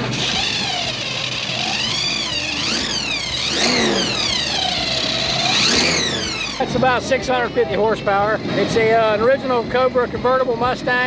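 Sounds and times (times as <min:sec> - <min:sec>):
car engine revving: 0:00.0 - 0:07.6.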